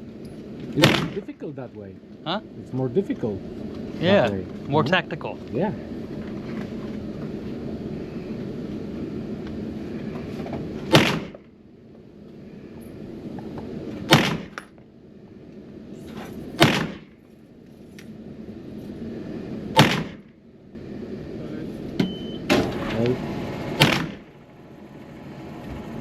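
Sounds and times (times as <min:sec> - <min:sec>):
gunshots with echo: 0:00.8 - 0:01.3, 0:10.9 - 0:11.4, 0:14.1 - 0:14.6, 0:16.6 - 0:17.1, 0:19.8 - 0:20.2, 0:23.8 - 0:24.3.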